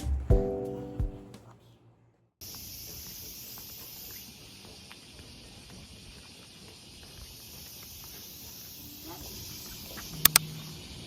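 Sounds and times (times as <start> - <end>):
insects chirping chorus: 2.4 - 11.0.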